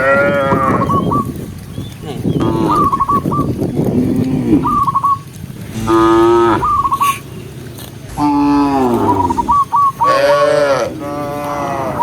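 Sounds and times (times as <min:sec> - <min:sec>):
cows mooing: 0:00.0 - 0:01.0, 0:02.0 - 0:12.0
high chirping notes: 0:04.6 - 0:10.2.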